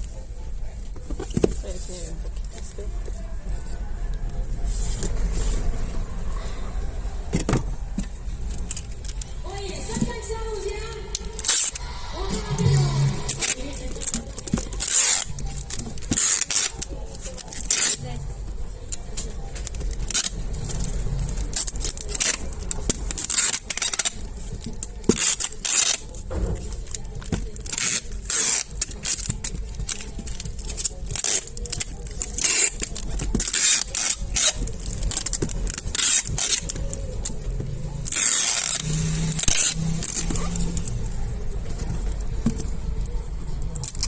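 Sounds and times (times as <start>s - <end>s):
steady low rumble: 6.1s - 15.6s
packaging scraping and rustling: 11.2s - 18.4s, 19.0s - 44.0s.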